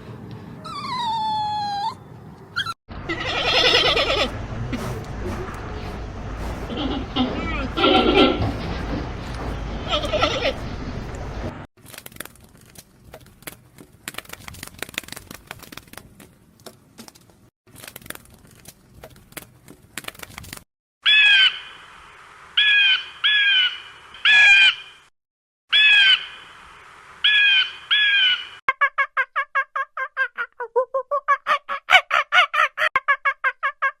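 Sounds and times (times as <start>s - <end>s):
bird harsh calls: 27.3s - 28.6s.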